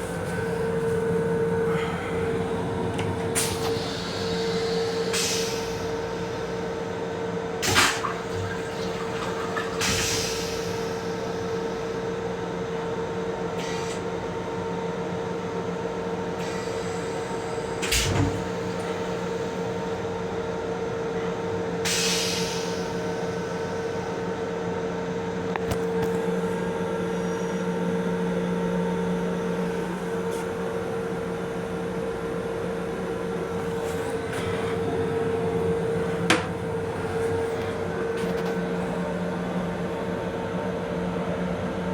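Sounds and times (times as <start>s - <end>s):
railcar electrical hum: 0.0s - 41.9s.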